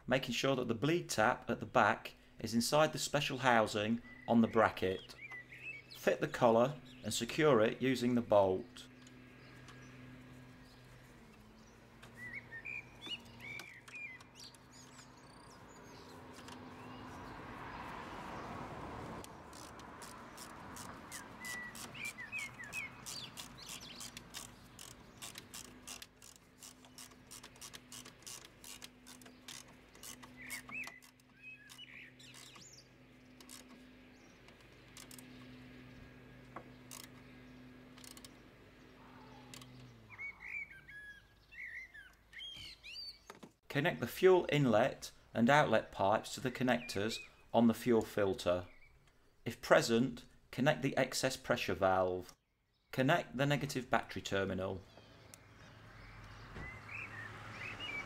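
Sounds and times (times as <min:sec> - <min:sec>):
faint birdsong: 0:00.0 - 0:58.0
tools clicking: 0:19.2 - 0:32.6, 0:38.0 - 0:38.4.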